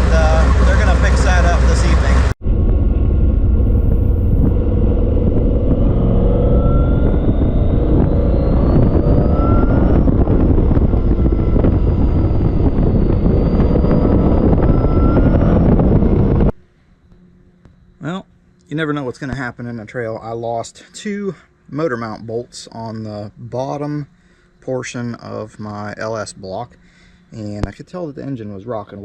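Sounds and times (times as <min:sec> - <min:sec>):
buggy engine rumbling: 0:00.0 - 0:16.5.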